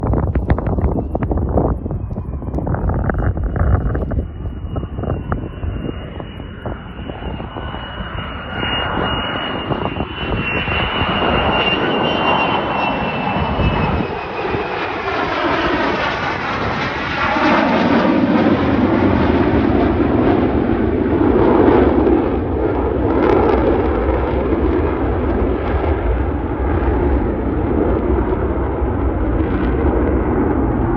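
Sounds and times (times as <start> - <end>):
fighter jets flying past: 0.0 - 30.9.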